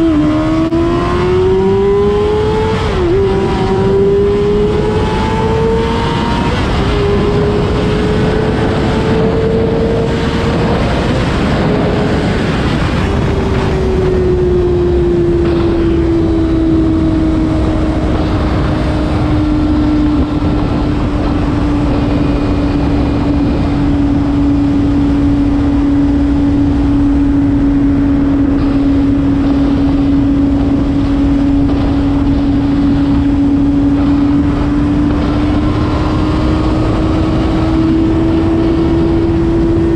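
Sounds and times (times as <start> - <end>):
rush of wind: 0.0 - 39.9.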